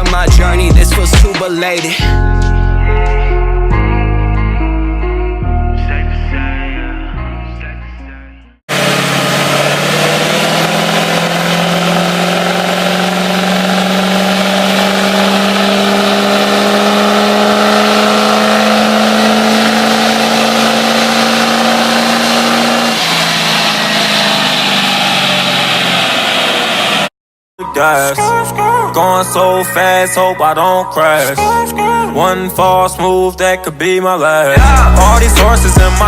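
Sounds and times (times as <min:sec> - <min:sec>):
truck engine revving high: 0:08.7 - 0:27.1, 0:34.6 - 0:36.0.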